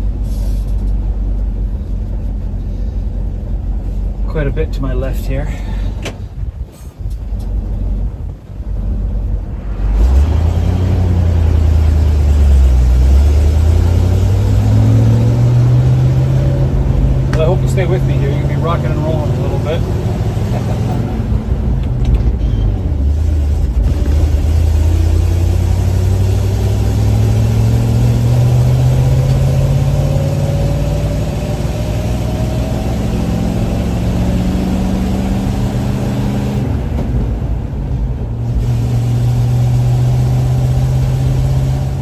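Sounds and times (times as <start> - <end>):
truck engine pulling: 0.0 - 42.0.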